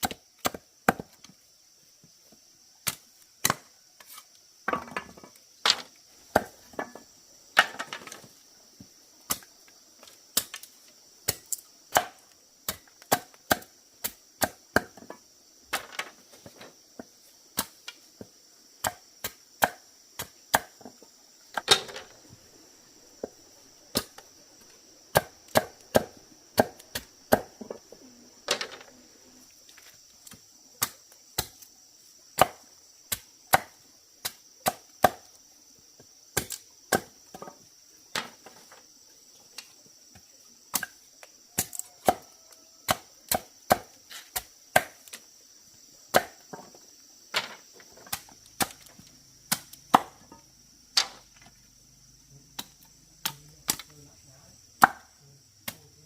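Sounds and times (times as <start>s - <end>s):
high insect drone: 0.0s - 56.0s
blade chopping bamboo: 11.2s - 15.1s, 25.1s - 27.8s, 32.4s - 35.3s, 41.6s - 42.2s, 42.9s - 45.2s, 46.1s - 46.4s, 48.1s - 48.9s, 49.5s - 50.2s, 54.8s - 55.8s.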